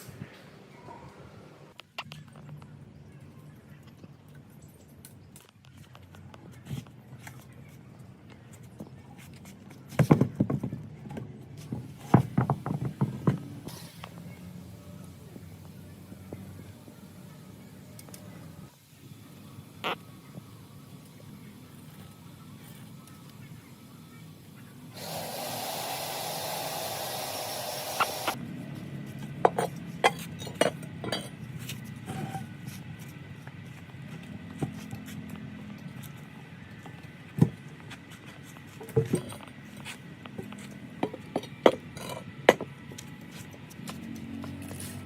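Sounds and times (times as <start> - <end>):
wood being rasped: 25.0 - 28.4.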